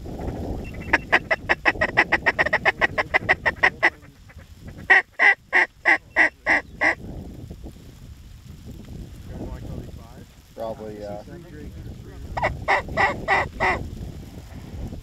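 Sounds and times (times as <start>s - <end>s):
goose clucking: 0.7s - 7.0s, 12.4s - 13.8s
goose honking: 0.7s - 7.0s, 12.4s - 13.8s.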